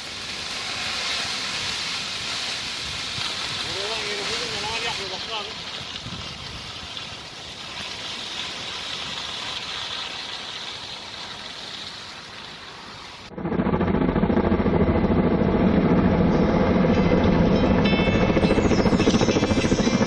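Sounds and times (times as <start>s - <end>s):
steady rushing outdoor noise: 0.0s - 14.0s
loud engine drone: 13.3s - 20.0s.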